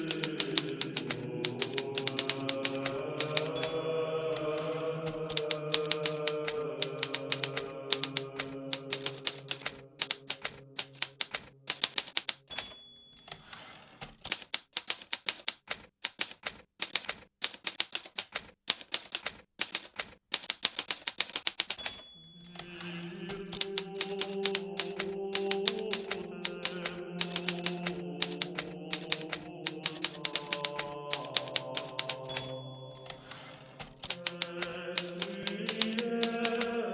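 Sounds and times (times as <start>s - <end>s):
typewriter typing: 0.0s - 36.9s
typewriter bell ding: 1.5s - 4.8s, 11.7s - 14.4s, 21.6s - 23.0s, 27.2s - 29.1s, 31.2s - 34.4s.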